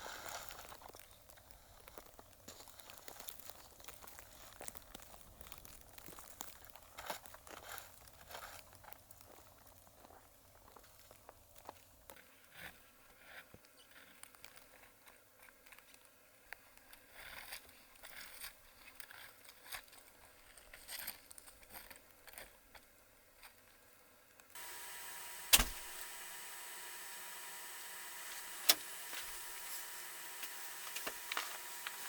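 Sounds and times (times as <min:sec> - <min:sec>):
rustling and crinkling: 0:00.0 - 0:10.1
steady hum: 0:24.6 - 0:32.0
loud sharp knock: 0:25.5 - 0:25.9.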